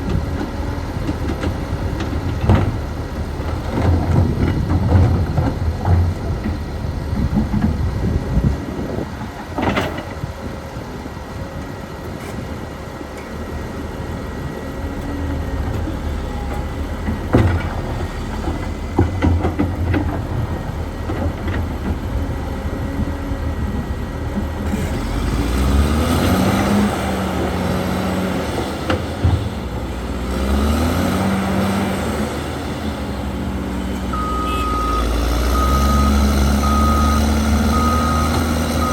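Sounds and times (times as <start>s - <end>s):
bulldozer diesel engine: 0.0s - 38.9s
reversing alarm beeping: 34.1s - 38.9s.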